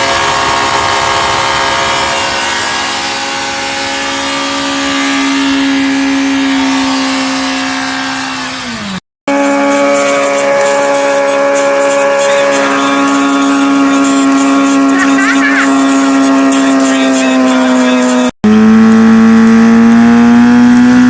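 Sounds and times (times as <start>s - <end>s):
motorcycle engine at high revs: 0.0s - 21.0s
second motorcycle engine: 0.0s - 21.0s.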